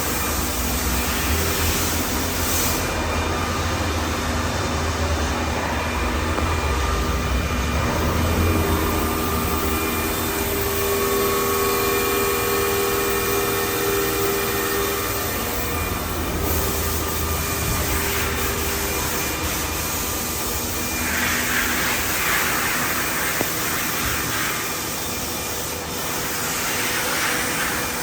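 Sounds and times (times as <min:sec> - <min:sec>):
machine whining tones: 0:00.0 - 0:28.0.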